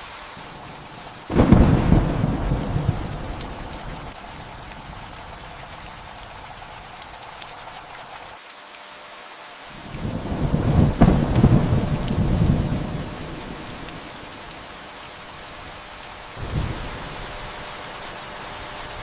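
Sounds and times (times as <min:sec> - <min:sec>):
steady rain: 0:00.0 - 0:19.0
thunder rumbling and cracking: 0:01.3 - 0:06.4, 0:09.9 - 0:14.7, 0:16.4 - 0:17.6.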